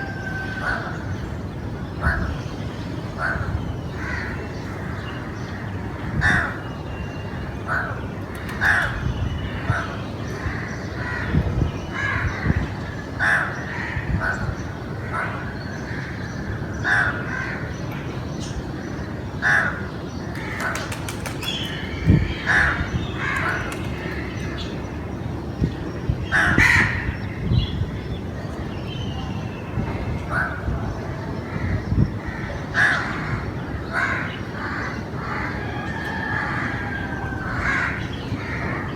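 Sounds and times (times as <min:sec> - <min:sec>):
crows cawing: 0:32.3 - 0:38.9.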